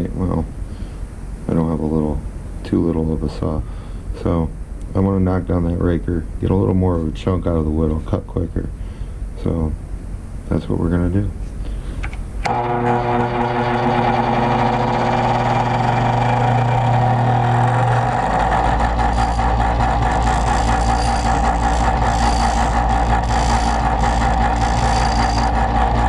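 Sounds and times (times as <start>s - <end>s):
electric grinder grinding metal: 12.5s - 26.0s.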